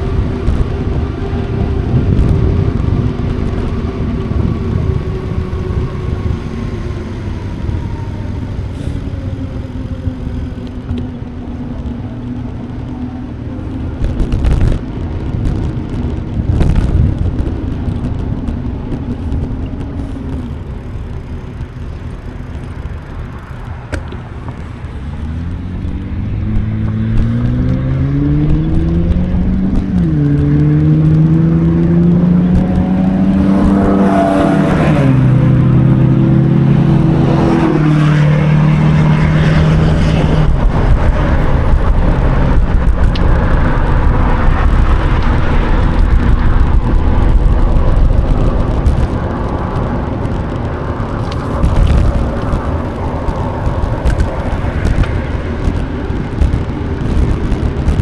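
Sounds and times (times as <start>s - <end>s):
wind gusts on microphone: 0.0s - 58.0s
engine accelerating through gears: 25.0s - 58.0s.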